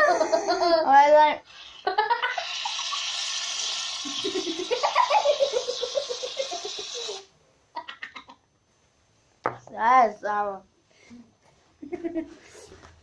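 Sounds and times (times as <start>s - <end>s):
girl laughing: 0.0s - 0.9s, 4.1s - 7.2s, 11.8s - 12.4s
steady hiss: 1.4s - 7.4s.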